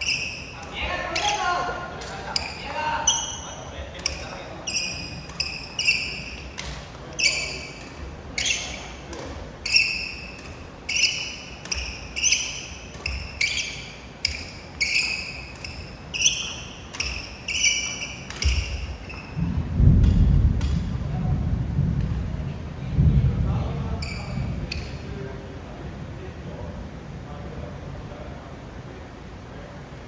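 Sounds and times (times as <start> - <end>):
shoes squeaking on gym floor: 0.0 - 19.6, 23.9 - 25.1
racket striking shuttlecock: 0.0 - 21.0
loud low rumble: 19.4 - 24.7.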